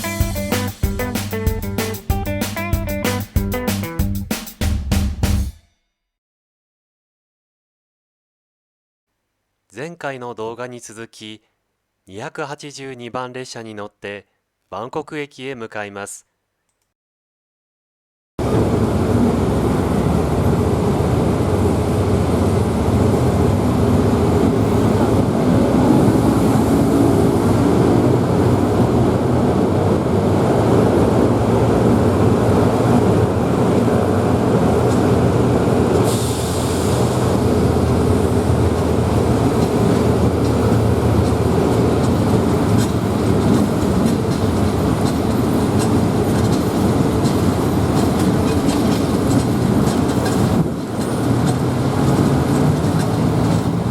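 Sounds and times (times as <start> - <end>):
train rumbling on track: 18.4 - 53.9.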